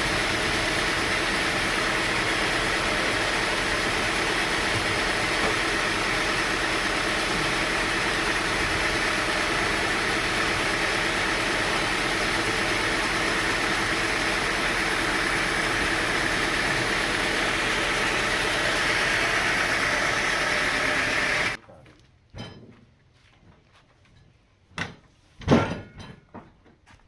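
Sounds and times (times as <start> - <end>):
sawmill machinery running: 0.0 - 21.6.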